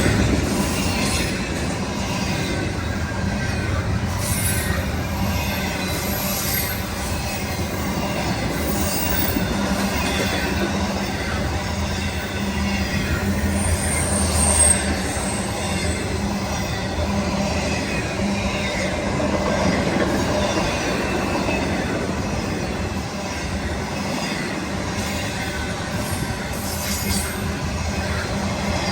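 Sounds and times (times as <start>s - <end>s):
train wheels rumbling on rails: 0.0s - 28.9s
high wheel squeal: 2.8s - 21.9s.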